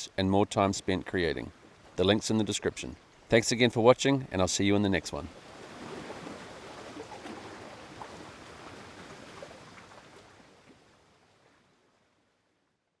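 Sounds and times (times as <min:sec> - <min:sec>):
lake water lapping and splashing: 0:05.1 - 0:12.6.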